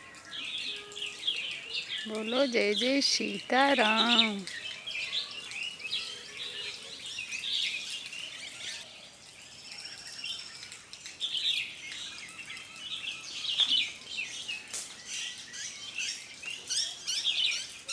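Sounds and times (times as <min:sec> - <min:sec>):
small birds chirping: 0:00.3 - 0:08.8.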